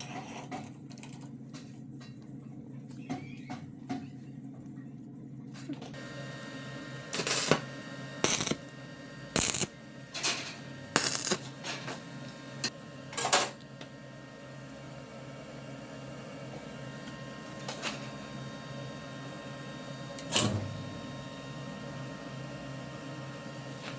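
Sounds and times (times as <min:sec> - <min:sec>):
machine hum: 0:00.8 - 0:23.9.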